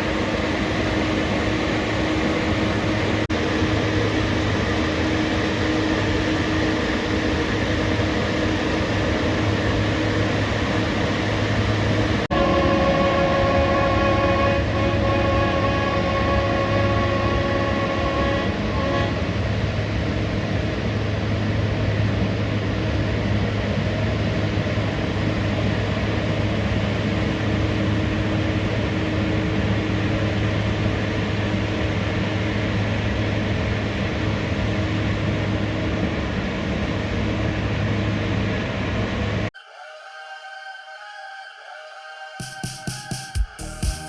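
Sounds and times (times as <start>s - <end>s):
train rumbling: 0.0s - 39.5s, 42.6s - 44.0s
train horn note: 12.3s - 19.9s.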